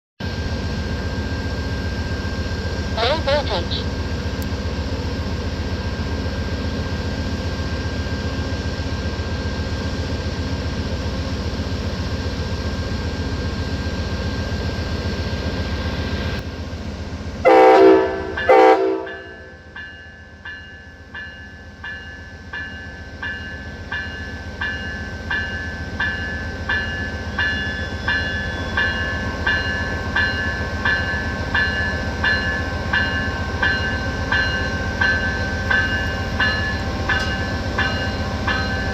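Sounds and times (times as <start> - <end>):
diesel locomotive rumbling: 0.2 - 38.9
train horn blasts: 17.4 - 19.6.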